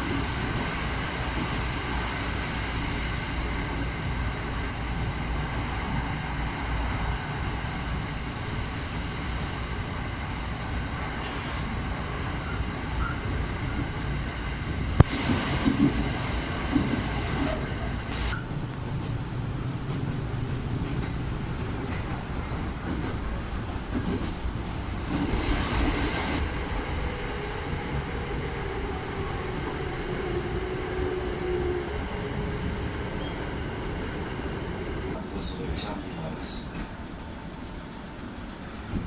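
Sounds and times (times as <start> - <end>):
train rumbling: 0.0 - 39.0
hiss: 15.0 - 23.4, 24.0 - 26.4.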